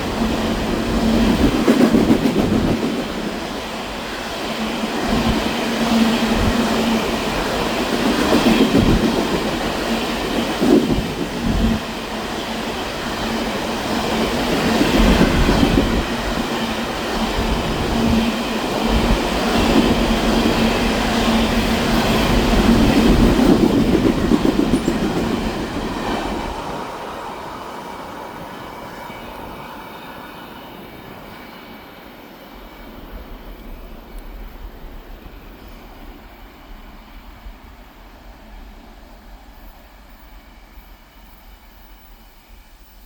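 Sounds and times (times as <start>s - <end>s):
train cars clattering on rails: 13.1s - 26.7s.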